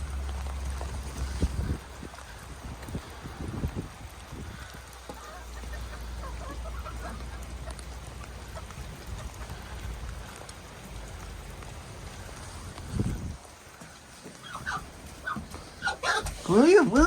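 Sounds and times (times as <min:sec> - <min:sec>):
wind rumbling on microphone: 0:00.0 - 0:06.2, 0:07.1 - 0:13.7
chickens calling: 0:00.0 - 0:17.0
rain falling: 0:00.0 - 0:17.0.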